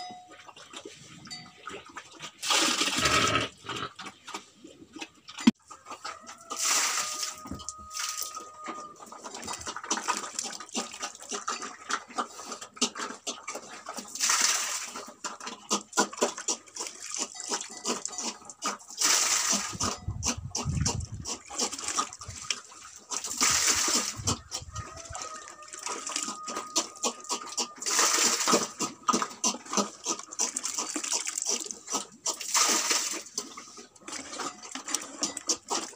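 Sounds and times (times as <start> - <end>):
pig chomping and slurping: 0.0 - 35.9
wet mash pouring into trough: 6.5 - 8.4, 14.1 - 15.1, 21.4 - 24.5, 25.3 - 33.4.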